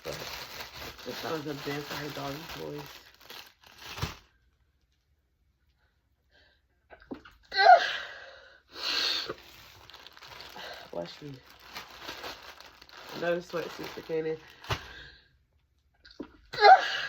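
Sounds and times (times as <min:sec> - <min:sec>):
woman sneezing: 0:16.6 - 0:17.0.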